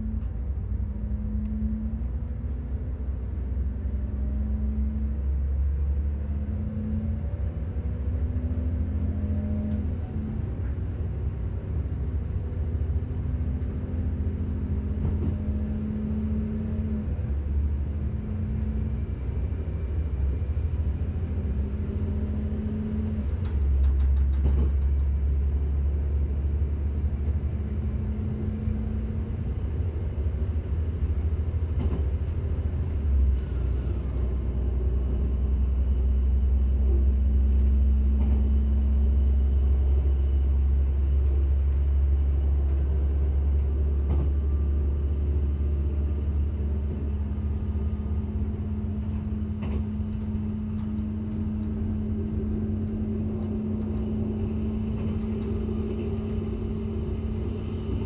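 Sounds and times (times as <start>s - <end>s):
humming tone: 0.0s - 2.3s
train rumbling on track: 0.0s - 58.0s.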